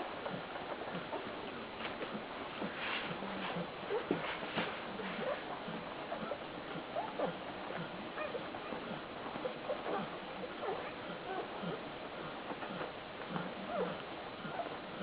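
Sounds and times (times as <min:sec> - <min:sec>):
puppies squeaking and whimpering: 0:07.0 - 0:11.9.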